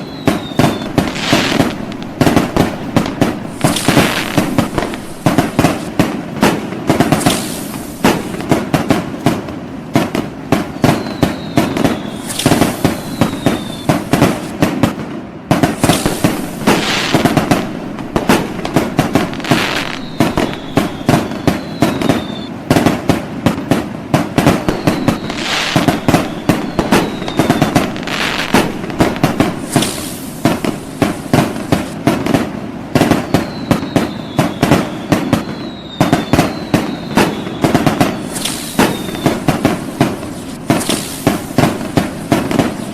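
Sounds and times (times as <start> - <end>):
falling firework whistle: 0.0 - 42.9
fireworks bangs and pops: 0.0 - 42.9
fireworks crackling: 0.0 - 42.9.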